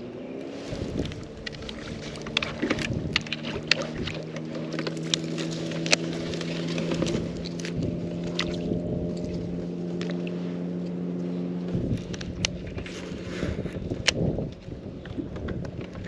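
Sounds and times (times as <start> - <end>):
electric motor humming: 0.0 - 16.0
splashy rustling: 0.5 - 10.7.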